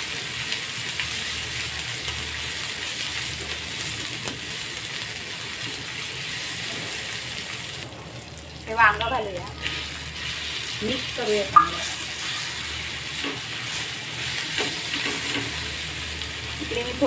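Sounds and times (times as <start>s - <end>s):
paste sizzling in oil: 9.0s - 17.0s.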